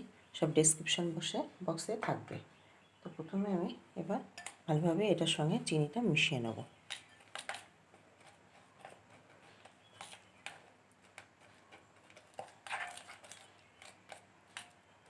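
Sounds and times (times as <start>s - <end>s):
utensil scraping a bowl: 6.7s - 14.8s.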